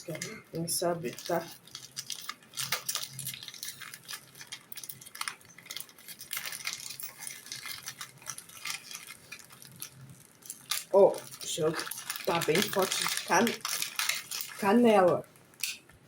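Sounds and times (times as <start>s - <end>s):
plastic wrapper crinkling: 0.0s - 16.0s.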